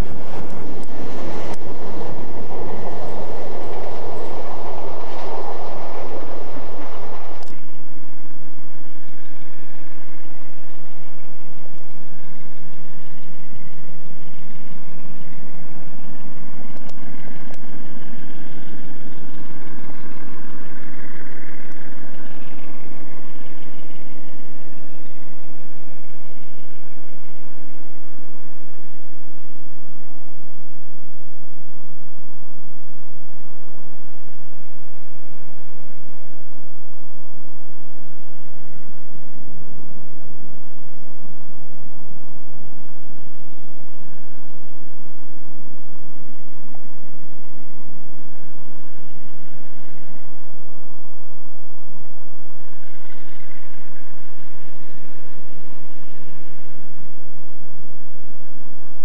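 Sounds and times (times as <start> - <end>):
distant locomotive hum: 0.0 - 24.4.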